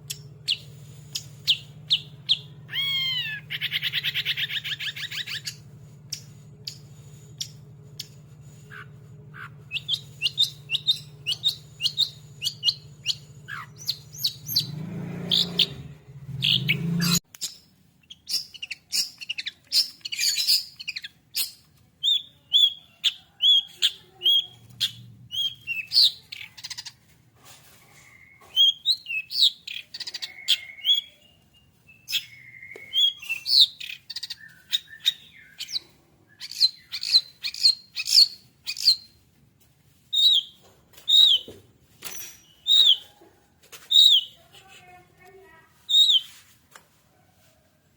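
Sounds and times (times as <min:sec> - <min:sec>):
low hum: 0:00.0 - 0:17.2
bird singing high chirps: 0:00.1 - 0:27.0, 0:27.9 - 0:39.2, 0:40.1 - 0:43.2, 0:43.8 - 0:46.4.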